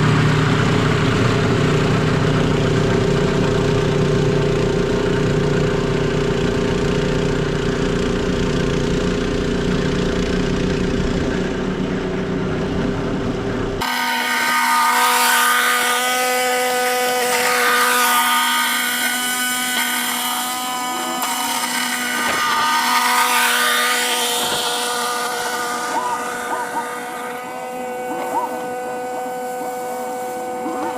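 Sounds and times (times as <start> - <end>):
heavy engine running: 0.0 - 30.9
small engine with mechanical whine: 0.0 - 30.9.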